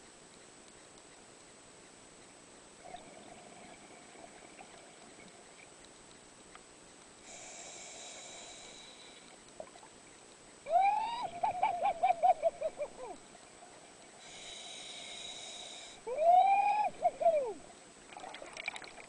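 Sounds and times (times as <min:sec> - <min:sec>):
scuba diver breathing through regulator: 0:07.3 - 0:09.3, 0:14.2 - 0:16.1.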